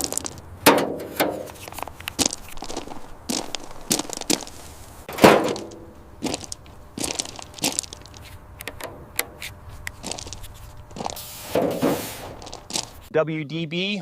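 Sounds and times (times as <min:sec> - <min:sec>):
sharp clicks and knocks: 0:00.0 - 0:02.4, 0:07.5 - 0:10.4.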